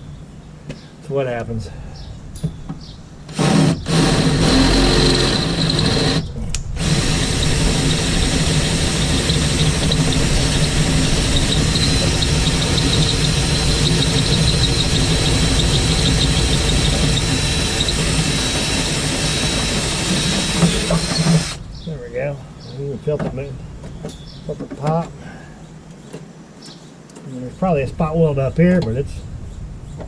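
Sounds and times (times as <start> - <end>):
power tool whining on sheet metal: 3.3 - 21.7.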